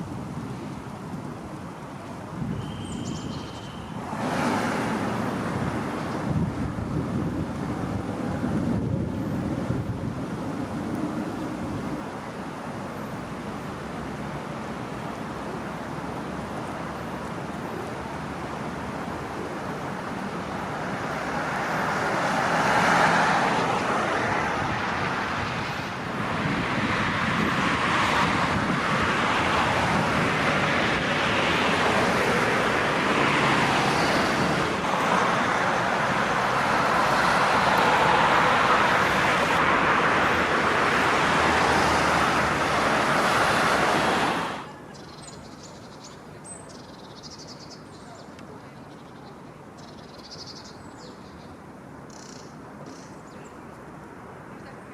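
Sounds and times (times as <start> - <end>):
road traffic noise: 0.0 - 54.9
vehicle passing: 4.0 - 6.1, 20.7 - 44.8.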